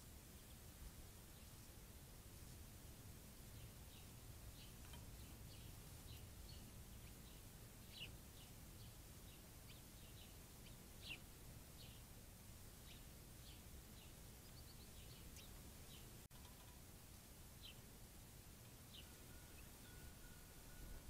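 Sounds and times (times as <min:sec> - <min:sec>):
faint bird chirps: 0:03.5 - 0:12.1, 0:12.8 - 0:17.9, 0:18.6 - 0:21.0.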